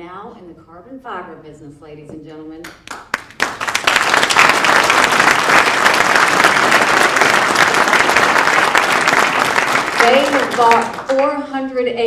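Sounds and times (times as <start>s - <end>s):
audience applauding: 2.8s - 11.2s.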